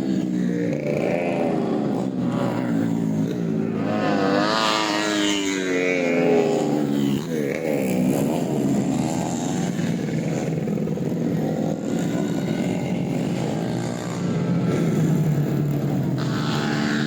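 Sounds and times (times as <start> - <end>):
motorcycle engine revving hard: 0.0 - 17.0.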